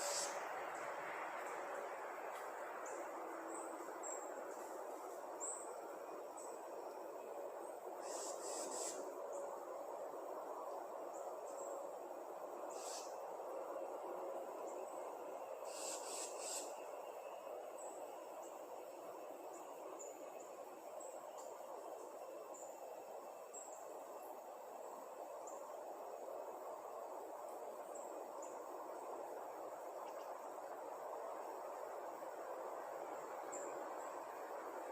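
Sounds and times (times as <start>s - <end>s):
small birds chirping: 0.0s - 0.4s, 8.0s - 9.5s, 12.7s - 13.2s, 15.7s - 16.8s.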